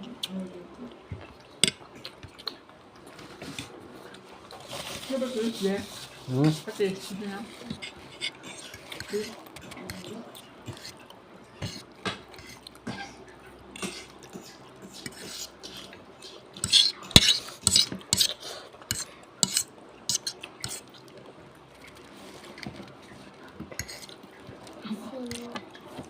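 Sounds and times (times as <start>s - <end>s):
cutlery clicking and scraping on plate: 16.6s - 20.9s.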